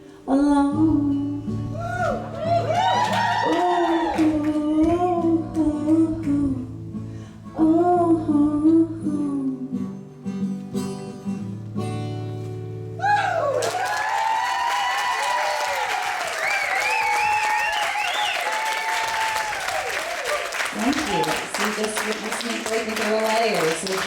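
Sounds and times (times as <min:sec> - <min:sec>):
woman singing with vibrato: 0:00.0 - 0:02.2, 0:03.3 - 0:06.9, 0:07.5 - 0:10.0
guitar accompaniment: 0:00.0 - 0:24.0.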